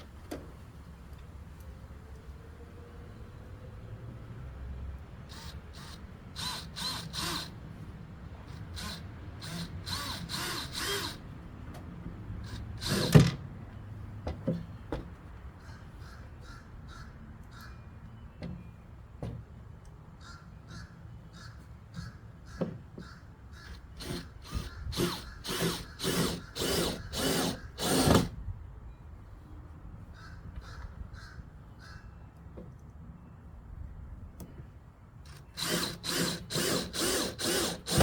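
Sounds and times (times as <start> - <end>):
crows cawing: 15.6 - 17.8.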